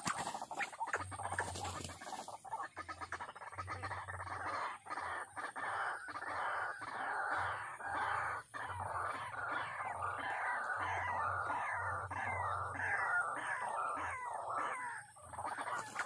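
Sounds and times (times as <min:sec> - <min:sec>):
waterhen croaking calls: 0:00.0 - 0:16.0.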